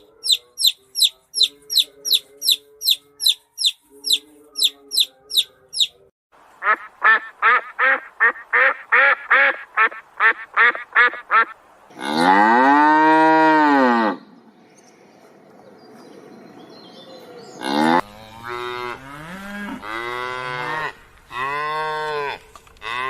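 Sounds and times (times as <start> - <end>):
cow mooing: 11.9 - 14.2, 17.6 - 23.0.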